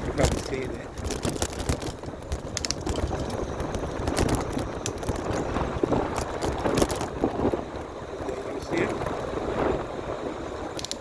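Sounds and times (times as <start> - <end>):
bicycle rattling over bumps: 0.0 - 11.0
wind rumble on microphone: 0.0 - 11.0
sharp clicks and knocks: 0.2 - 7.2, 10.8 - 11.0.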